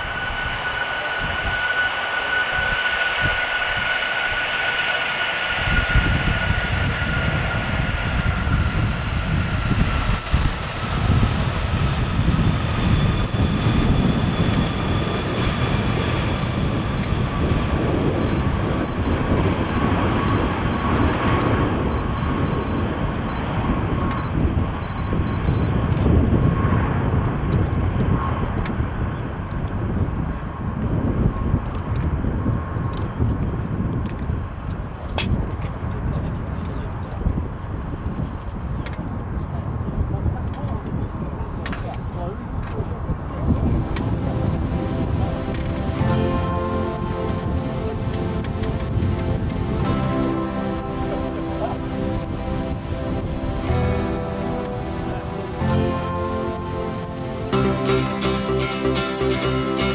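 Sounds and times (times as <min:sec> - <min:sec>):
jet engines whining: 0:00.0 - 0:25.9, 0:43.2 - 0:59.9
deep crackling jet rumble: 0:00.0 - 0:28.4, 0:43.0 - 0:59.9.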